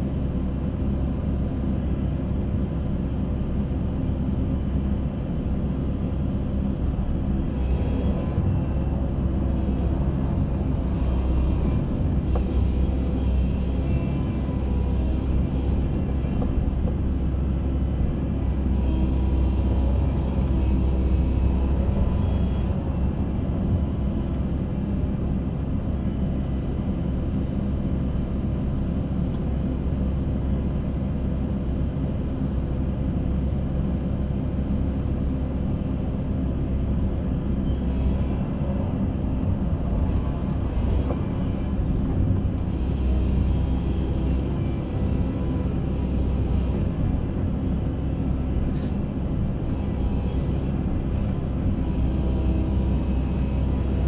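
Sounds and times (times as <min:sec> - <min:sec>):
concrete mixer engine rumble: 0:03.0 - 0:26.2, 0:36.6 - 0:54.0.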